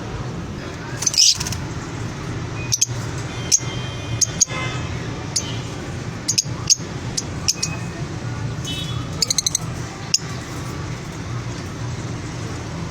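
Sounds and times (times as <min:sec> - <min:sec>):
small birds chirping: 0:00.9 - 0:01.8, 0:05.3 - 0:10.8.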